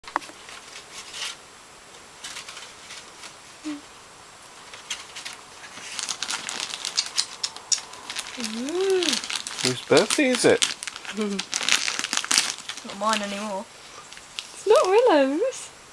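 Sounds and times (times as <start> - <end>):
gift wrapping crinkling: 2.2 - 3.8, 4.5 - 15.6.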